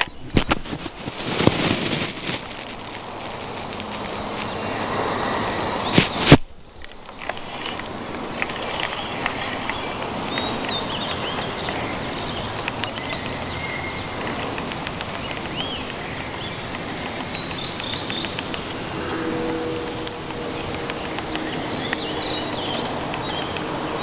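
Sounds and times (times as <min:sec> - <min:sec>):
birds chirping and whistling: 0:00.0 - 0:24.0
outdoor background hiss: 0:00.0 - 0:24.0.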